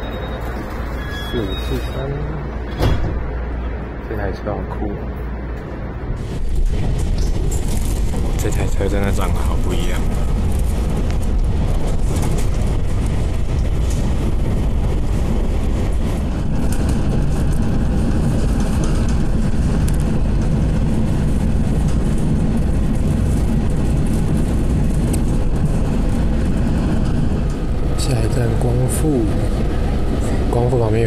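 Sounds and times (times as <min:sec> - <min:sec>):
train rumbling: 0:00.0 - 0:31.0.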